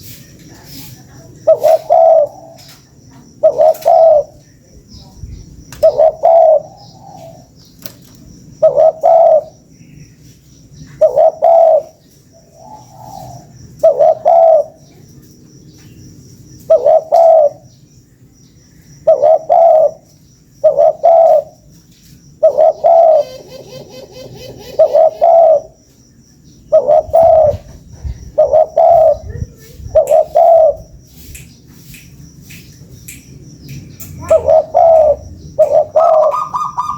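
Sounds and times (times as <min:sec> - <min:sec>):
dove cooing: 0:01.4 - 0:04.4, 0:05.8 - 0:07.5, 0:08.6 - 0:09.6, 0:10.9 - 0:15.0, 0:16.6 - 0:17.7, 0:19.0 - 0:21.7, 0:22.3 - 0:25.8, 0:26.6 - 0:30.9, 0:34.2 - 0:36.9.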